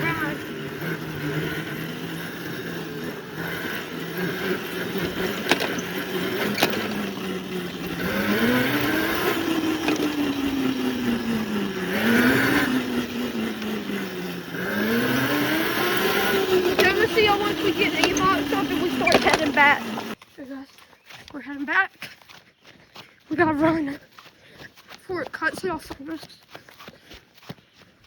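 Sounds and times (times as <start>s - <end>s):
small engine running: 0.0s - 20.2s.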